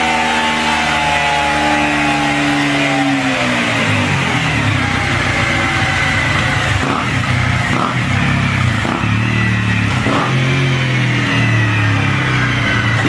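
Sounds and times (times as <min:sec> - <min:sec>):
motorcycle engine exhaust: 0:00.0 - 0:13.0.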